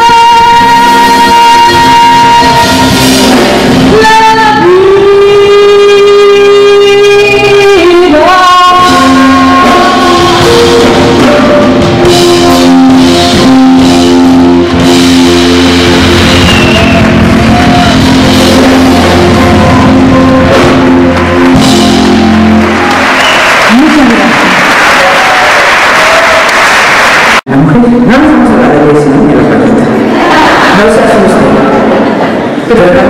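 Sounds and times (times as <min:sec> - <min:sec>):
person singing long notes: 0:00.0 - 0:16.4, 0:17.2 - 0:22.8
live band music: 0:00.0 - 0:33.0.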